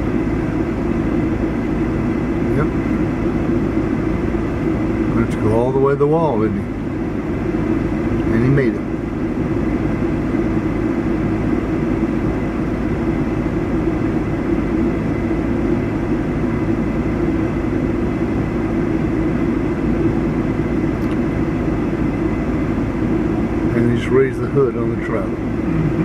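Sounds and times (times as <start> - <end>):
vehicle engine droning: 0.0 - 26.0.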